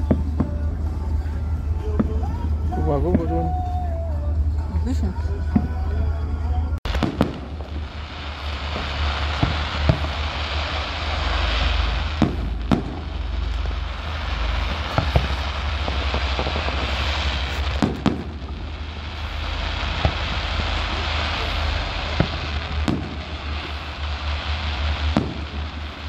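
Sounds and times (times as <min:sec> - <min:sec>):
steady low rumble: 0:00.0 - 0:26.0
continuous hiss: 0:06.9 - 0:26.0
firework shells bursting: 0:06.9 - 0:26.0.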